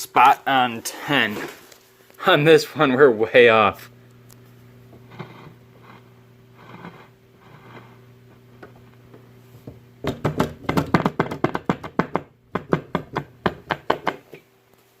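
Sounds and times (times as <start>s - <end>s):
tube radio humming: 0.0s - 11.2s.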